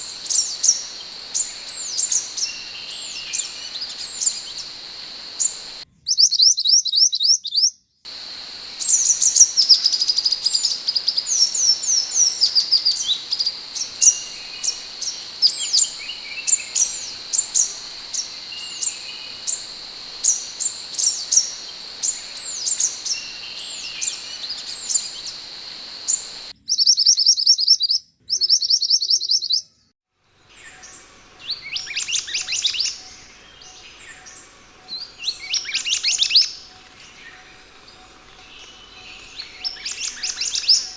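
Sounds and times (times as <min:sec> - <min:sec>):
bird chirping: 0:00.0 - 0:05.8, 0:08.1 - 0:26.5
steady high whine: 0:00.0 - 0:05.8, 0:08.1 - 0:26.5.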